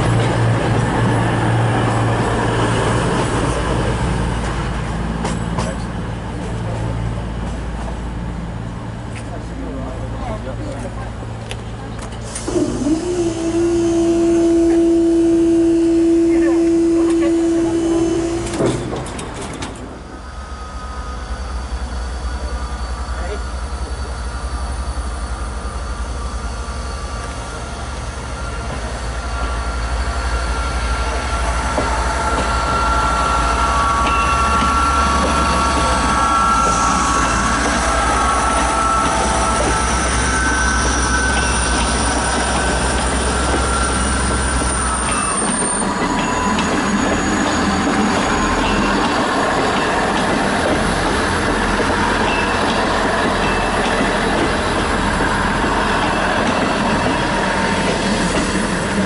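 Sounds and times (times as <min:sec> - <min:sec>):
diesel train engines running: 0:00.0 - 0:59.0
train wheels squealing on track: 0:12.1 - 0:59.0.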